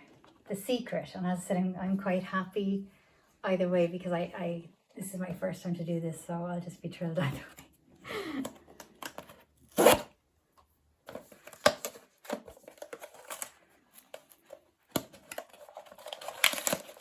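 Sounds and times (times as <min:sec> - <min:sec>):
cardboard and plastic tearing: 0:08.8 - 0:10.1, 0:11.1 - 0:17.0
packaging rustling: 0:11.1 - 0:17.0.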